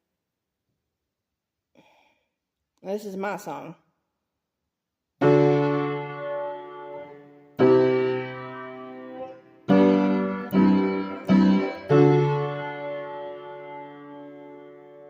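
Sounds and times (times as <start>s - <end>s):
electric piano chords: 5.2s - 15.0s.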